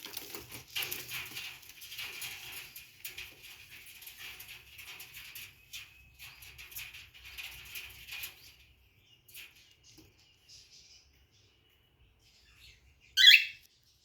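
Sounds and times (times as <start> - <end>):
birds scratching and rustling: 0.0 - 12.9
faint bird chirps: 9.8 - 14.0.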